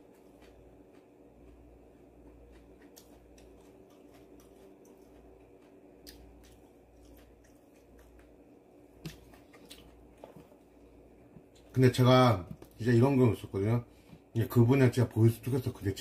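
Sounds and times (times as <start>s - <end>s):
mouth-closed chewing: 0.0s - 10.6s
steady low hum: 0.0s - 16.0s.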